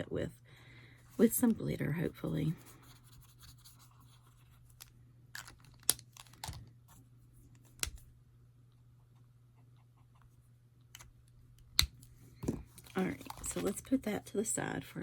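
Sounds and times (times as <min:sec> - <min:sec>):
faint steady hum: 0:00.0 - 0:15.0
paper rustling: 0:12.4 - 0:13.9.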